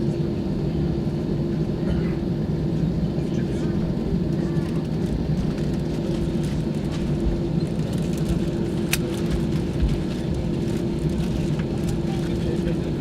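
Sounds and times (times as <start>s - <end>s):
airliner engine rumble: 0.0s - 13.0s.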